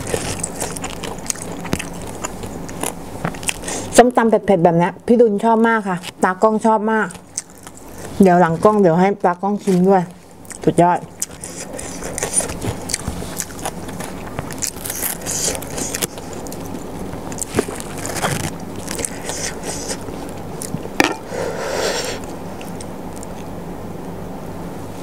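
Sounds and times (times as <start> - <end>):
close chewing with crunches: 0.0 - 4.0, 7.0 - 21.0, 22.2 - 23.6.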